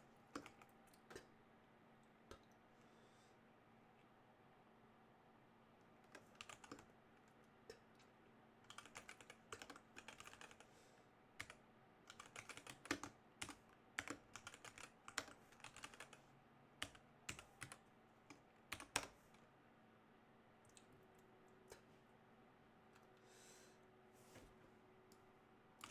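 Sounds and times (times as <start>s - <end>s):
computer keyboard typing: 0.3s - 1.3s, 6.1s - 6.9s, 8.7s - 10.7s, 11.4s - 16.2s, 16.8s - 19.2s.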